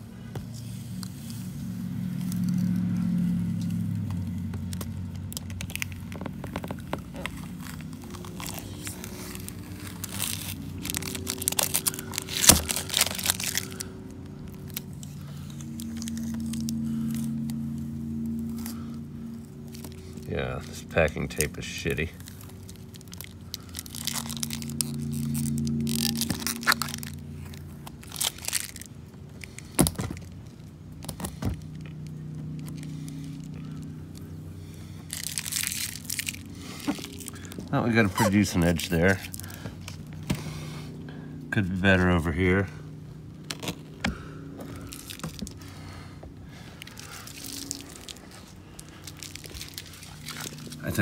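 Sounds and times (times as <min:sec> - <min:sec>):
steady low hum: 0:00.0 - 0:51.0
packing tape tearing off plastic: 0:04.6 - 0:17.6, 0:21.1 - 0:33.8, 0:35.0 - 0:40.4, 0:43.4 - 0:45.6, 0:46.8 - 0:51.0.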